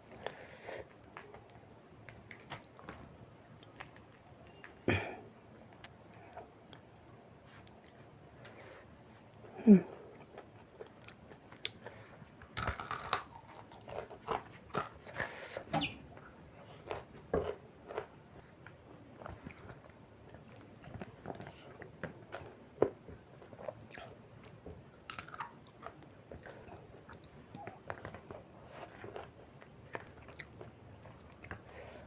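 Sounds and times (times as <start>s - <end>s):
chewing and crunching food: 0.0s - 2.9s, 3.6s - 4.9s, 5.7s - 15.7s, 16.6s - 32.0s.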